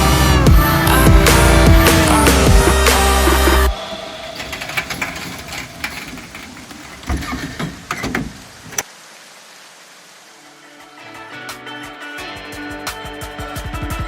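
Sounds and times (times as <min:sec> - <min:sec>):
engine knocking and clattering: 0:00.0 - 0:08.8
faint hiss: 0:00.8 - 0:11.2.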